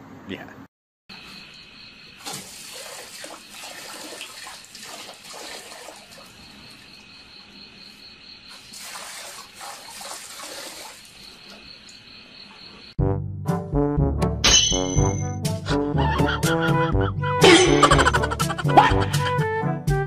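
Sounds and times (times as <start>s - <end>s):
pulsing insect trill: 1.1s - 4.1s, 5.8s - 13.0s
dog lapping water: 2.2s - 6.5s, 8.6s - 11.6s
tap water splashing into metal bucket: 2.2s - 6.8s, 8.5s - 11.6s.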